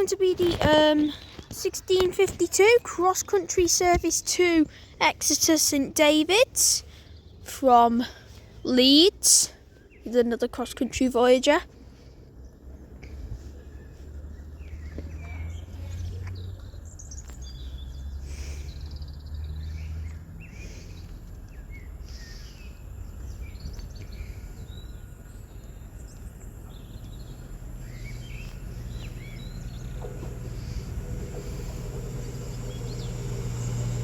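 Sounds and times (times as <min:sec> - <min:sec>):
small birds chirping: 0:00.0 - 0:34.0
low background rumble: 0:09.5 - 0:34.0.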